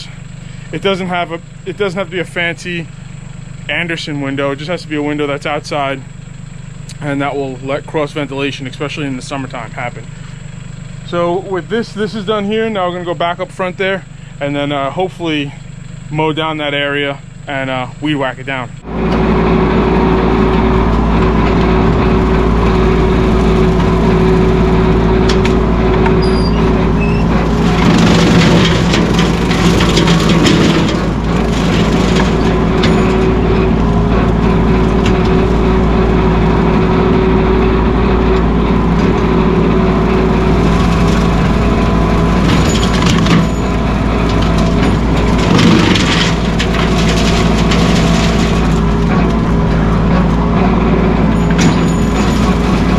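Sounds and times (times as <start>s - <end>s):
tractor diesel engine running: 0.0s - 52.9s
crackling and rattling: 18.9s - 52.9s.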